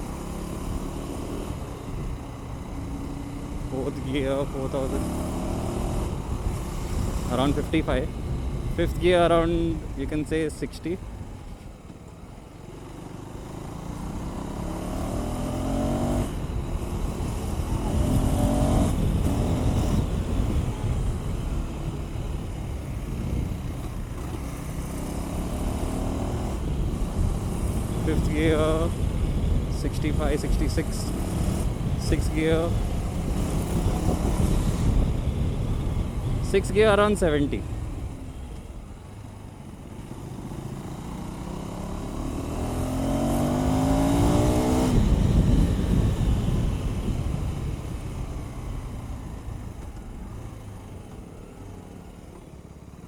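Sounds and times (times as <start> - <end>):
motorcycle engine revving: 0.0 - 10.1, 11.4 - 52.8
wind rush on microphone: 5.5 - 10.2, 16.2 - 39.1, 42.5 - 50.8.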